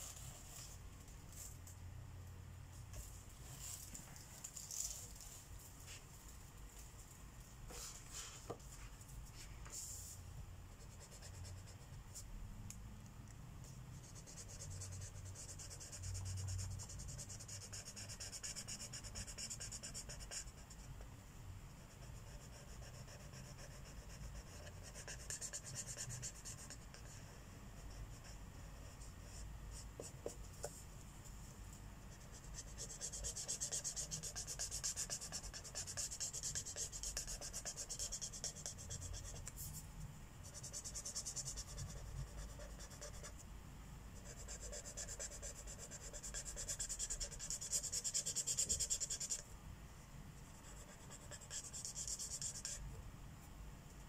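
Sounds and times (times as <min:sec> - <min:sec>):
marker scratching on paper: 0:14.0 - 0:20.9, 0:21.8 - 0:30.8, 0:32.1 - 0:39.8, 0:40.4 - 0:43.4, 0:44.2 - 0:49.4, 0:50.6 - 0:52.9.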